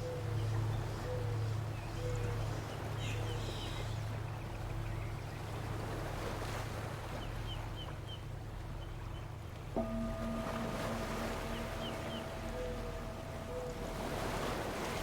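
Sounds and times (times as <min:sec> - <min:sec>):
low hum: 0:09.7 - 0:15.0
singing bowl tones: 0:09.7 - 0:15.0
birds chirping: 0:09.8 - 0:15.0
ocean surf: 0:09.8 - 0:15.0.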